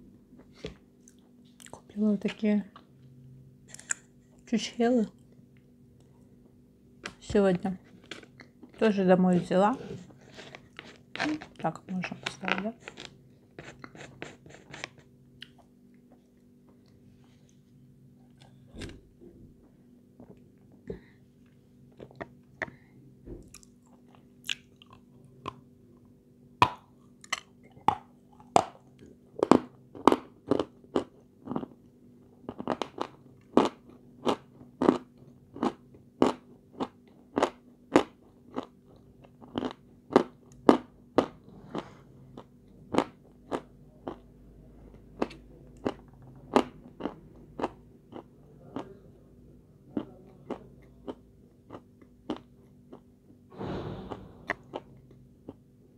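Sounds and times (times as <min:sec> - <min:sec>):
faint steady hum: 0:00.0 - 0:55.9
person crunching and chewing: 0:12.4 - 0:15.7, 0:23.5 - 0:25.6, 0:27.0 - 0:31.8, 0:32.4 - 0:44.3, 0:45.1 - 0:48.9, 0:50.0 - 0:53.1.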